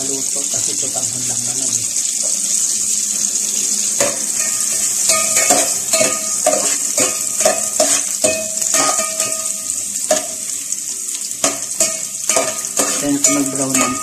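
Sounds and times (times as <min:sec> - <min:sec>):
garlic sizzling in a pan: 0:00.0 - 0:14.0
spoon scraping and knocking pan: 0:03.8 - 0:10.6, 0:11.3 - 0:14.0.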